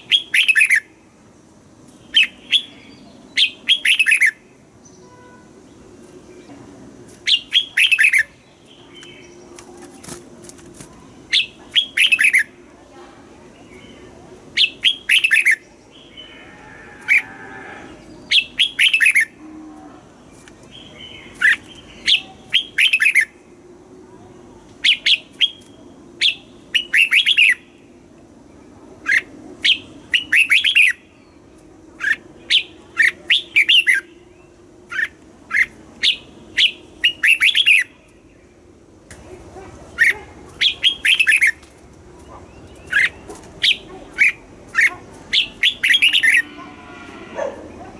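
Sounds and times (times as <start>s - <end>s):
bird singing whistled notes: 2.0s - 5.3s, 14.6s - 16.1s, 24.8s - 27.7s, 32.0s - 38.0s, 45.4s - 46.5s.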